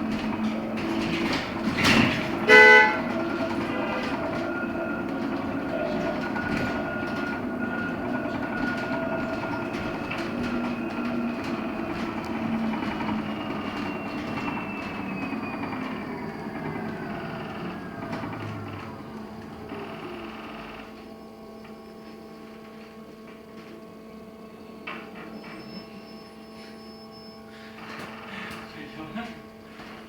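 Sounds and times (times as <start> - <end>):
road and cabin noise: 0.0 - 30.0
bus horn honk: 2.0 - 4.2.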